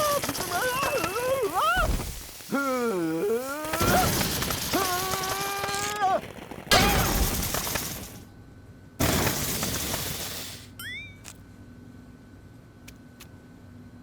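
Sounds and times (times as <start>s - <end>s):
cartoon character's long cry: 2.5s - 7.0s
cartoon crash and shattering: 6.7s - 8.2s.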